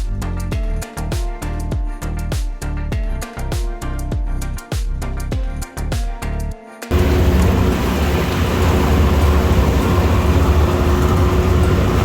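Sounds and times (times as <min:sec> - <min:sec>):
background music: 0:00.0 - 0:12.0
boat engine rumbling: 0:06.9 - 0:12.0
water hissing: 0:06.9 - 0:12.0
wind: 0:06.9 - 0:12.0.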